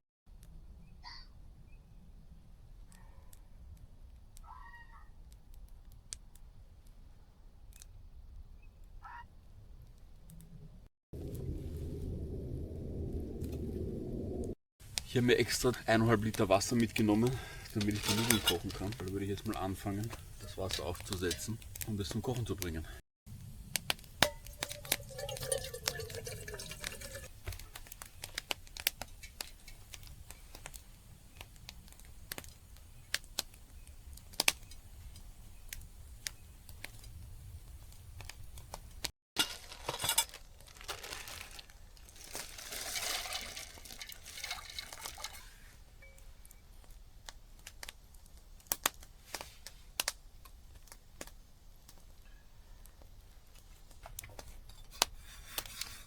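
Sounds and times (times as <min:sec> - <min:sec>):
campfire crackling and popping: 0:14.4 - 0:55.9
water pouring into a pot: 0:24.2 - 0:29.5, 0:41.2 - 0:45.8.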